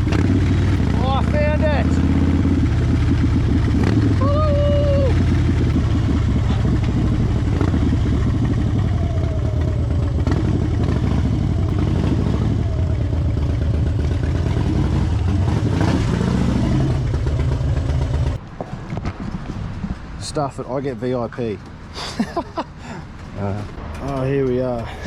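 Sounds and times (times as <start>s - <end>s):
motorcycle engine pulsing exhaust: 0.0s - 20.8s.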